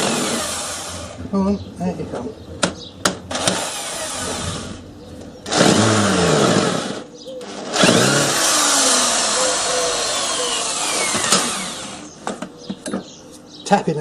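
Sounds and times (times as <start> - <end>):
electric angle grinder running: 0.0 - 1.2, 5.5 - 12.1.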